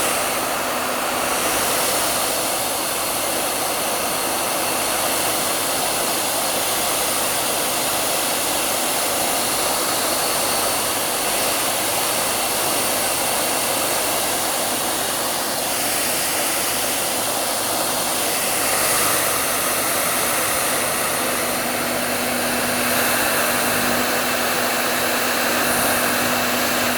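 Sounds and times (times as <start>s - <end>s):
hair dryer running: 0.0s - 26.9s
low hum: 20.5s - 26.9s.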